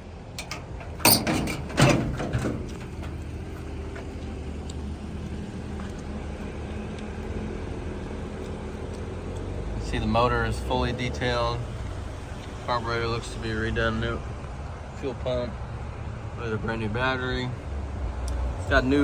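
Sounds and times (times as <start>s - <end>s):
metal clunks ringing: 0.4s - 3.2s.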